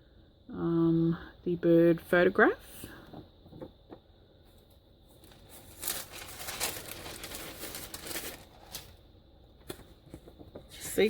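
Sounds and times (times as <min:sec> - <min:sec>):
paper rustling and crinkling: 0:05.1 - 0:09.0.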